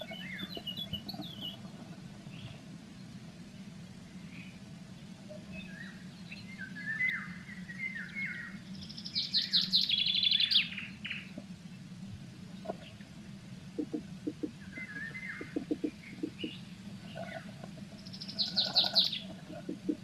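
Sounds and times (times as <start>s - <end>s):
bird calling and singing: 0.0s - 2.6s, 5.3s - 11.5s, 13.8s - 20.0s
steady low hum: 0.0s - 20.0s.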